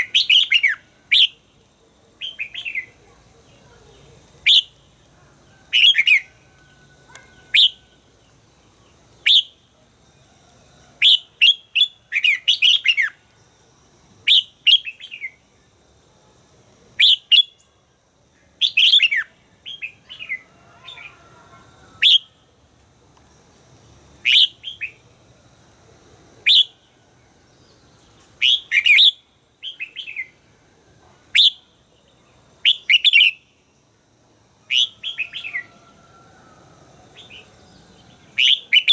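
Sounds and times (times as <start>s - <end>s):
bird singing chirping phrases: 0.0s - 5.0s, 7.0s - 9.7s, 11.0s - 13.2s, 14.3s - 15.5s, 18.4s - 21.3s, 27.6s - 30.4s, 34.7s - 35.8s, 37.1s - 38.9s.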